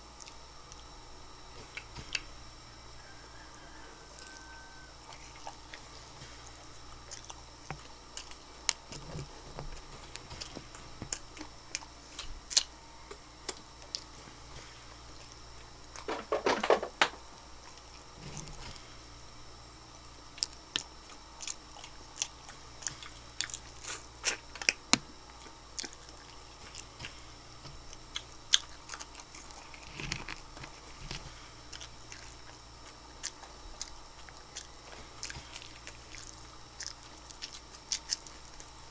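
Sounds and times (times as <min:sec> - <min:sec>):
crunching and wet chewing: 0:00.0 - 0:16.2, 0:17.2 - 0:38.9.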